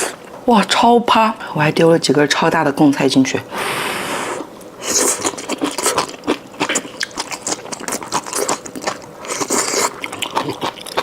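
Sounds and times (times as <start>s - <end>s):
chewing and crunching: 4.8s - 11.0s.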